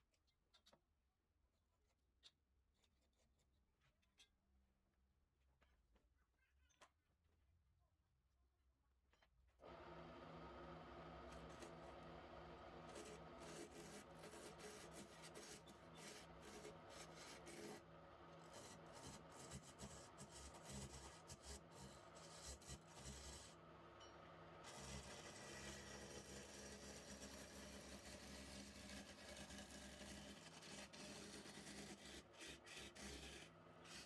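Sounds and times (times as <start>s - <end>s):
turning tool scraping wood: 12.9s - 17.8s, 24.7s - 34.0s.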